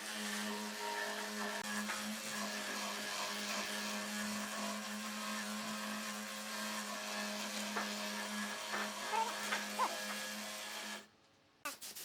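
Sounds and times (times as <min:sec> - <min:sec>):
power tool motor running: 0:00.0 - 0:11.1.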